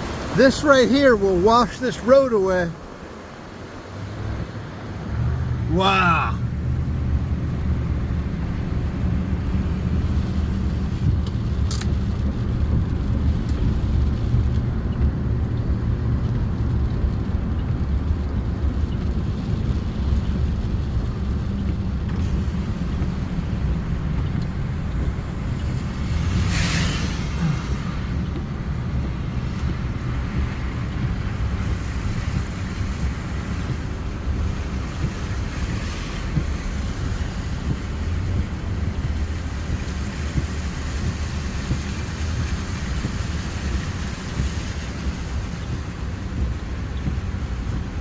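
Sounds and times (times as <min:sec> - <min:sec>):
car engine and tyres rumble: 0:00.0 - 0:48.0
brief rushing hiss: 0:26.4 - 0:27.8.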